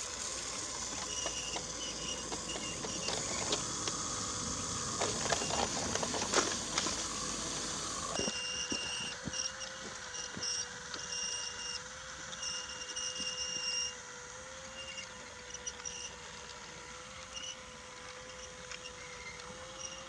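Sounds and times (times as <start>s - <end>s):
wheels clicking over track joints: 0.0s - 11.1s
toy train motor hum: 0.0s - 20.0s
high squeak: 1.0s - 3.6s.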